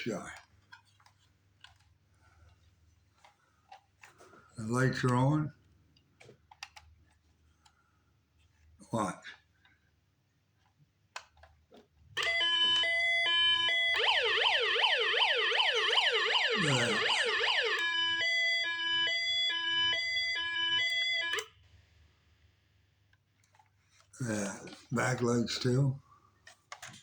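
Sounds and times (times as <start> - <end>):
electronic toy siren: 12.2 - 21.6.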